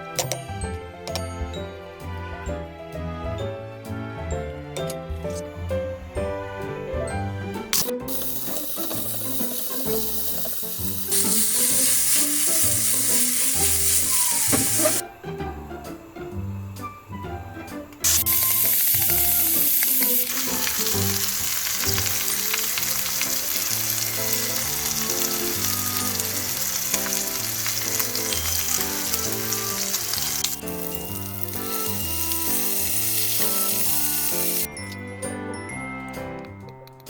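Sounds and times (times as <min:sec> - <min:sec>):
background music: 0:00.0 - 0:37.0
meat sizzling in a pan: 0:07.8 - 0:15.0, 0:18.0 - 0:34.7.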